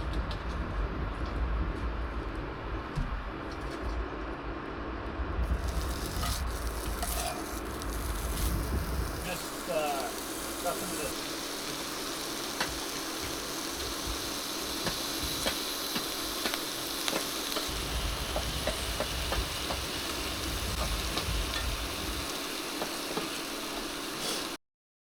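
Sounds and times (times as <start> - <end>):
food sizzling in a pan: 5.4 - 24.6
pops and crackles: 5.5 - 24.6.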